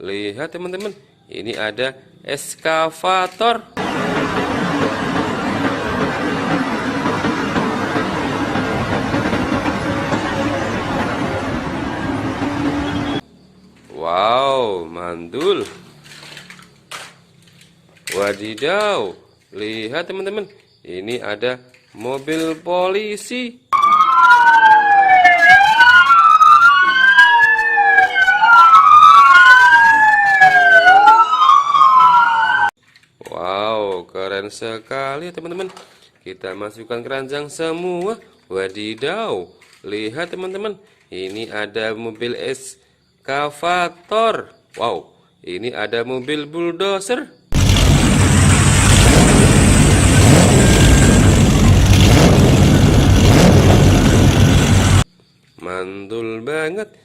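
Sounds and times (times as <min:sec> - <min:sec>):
bulldozer diesel engine running: 0:03.8 - 0:13.2, 0:47.6 - 0:55.0
police siren wailing: 0:03.8 - 0:13.2, 0:23.8 - 0:32.8, 0:47.6 - 0:55.0.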